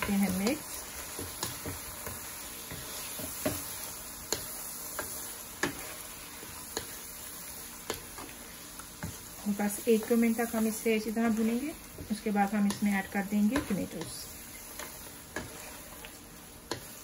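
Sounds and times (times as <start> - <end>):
chicken sizzling in hot fat: 0.0 - 17.0
wooden spatula tapping a pan: 1.1 - 3.7, 11.4 - 14.2.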